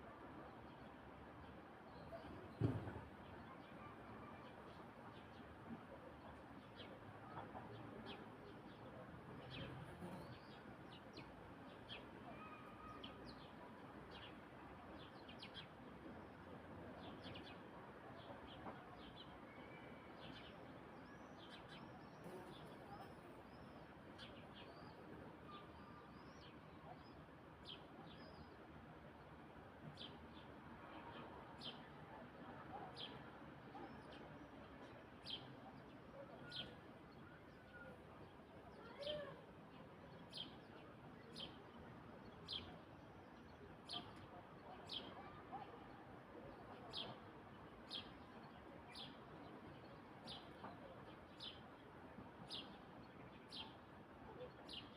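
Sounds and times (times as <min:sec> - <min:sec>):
steady outdoor background hiss: 0:00.0 - 0:54.9.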